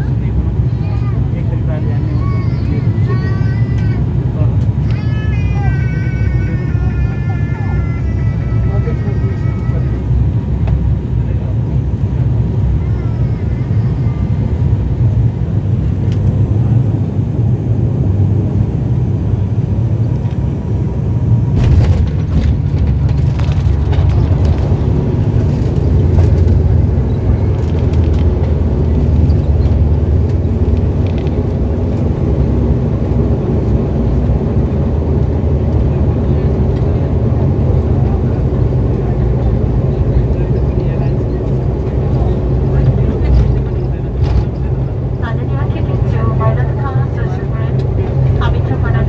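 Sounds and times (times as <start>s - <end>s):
airliner cabin rumble: 0.0s - 49.0s
knocks and rattles: 21.6s - 26.8s.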